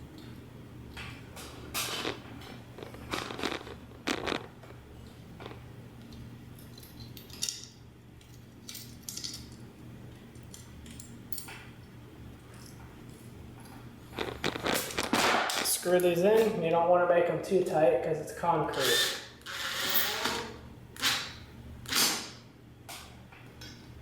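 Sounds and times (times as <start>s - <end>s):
steady low hum: 0.0s - 24.0s
metallic clinks and rattles: 6.6s - 9.6s.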